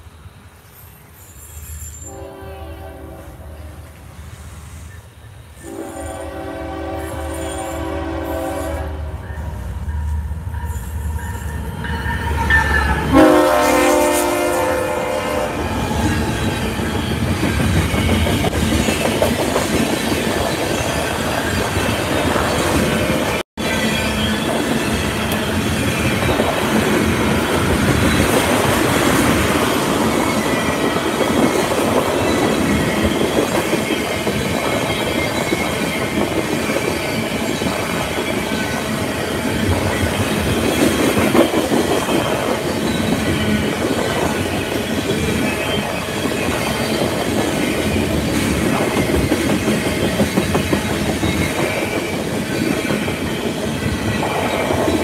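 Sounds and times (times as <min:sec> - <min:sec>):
high wheel squeal: 0:00.6 - 0:02.2
steel wheels rumbling on rails: 0:00.8 - 0:55.0.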